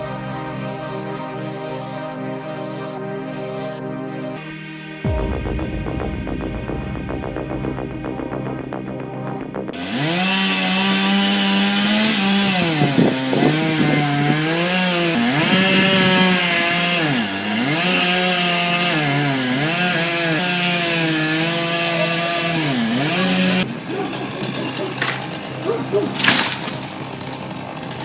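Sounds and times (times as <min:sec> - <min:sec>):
chainsaw cutting wood: 0:09.8 - 0:28.0.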